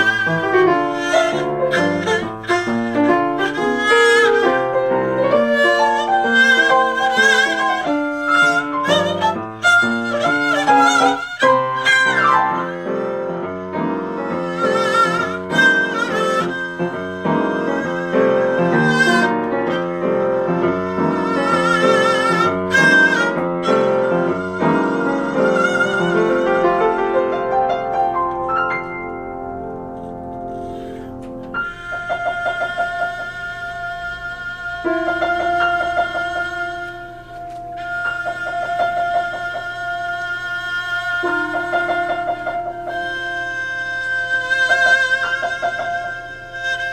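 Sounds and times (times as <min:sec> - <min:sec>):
piano chordal accompaniment: 0:00.0 - 0:33.6
melody played with vibrato: 0:00.0 - 0:46.9.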